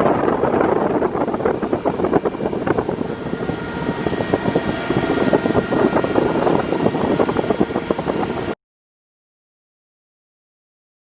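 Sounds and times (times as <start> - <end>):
boat engine running: 0.0 - 8.6
faint steady whine: 0.0 - 8.6
wind buffeting microphone: 0.0 - 8.6.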